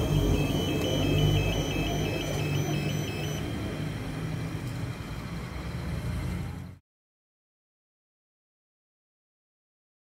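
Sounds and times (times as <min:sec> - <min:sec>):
electronic warning beep: 0:00.0 - 0:03.4.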